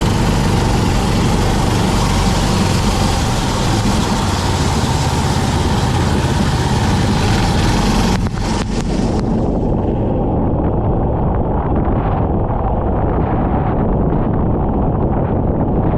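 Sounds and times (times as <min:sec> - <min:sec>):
kart engine running: 0:00.0 - 0:10.5.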